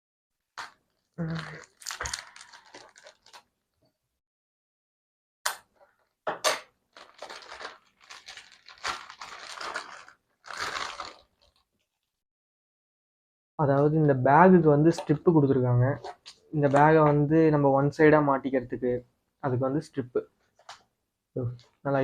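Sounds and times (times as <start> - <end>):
packaging crinkling and tearing: 0.6 - 3.5, 6.9 - 11.8.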